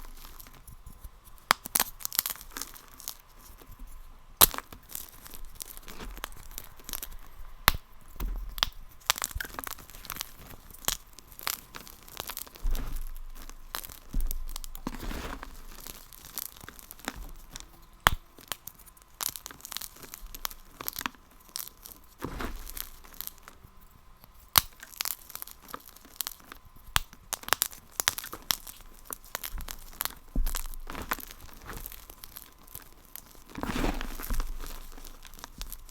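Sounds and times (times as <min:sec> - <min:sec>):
brittle material crunching: 0:00.0 - 0:35.9.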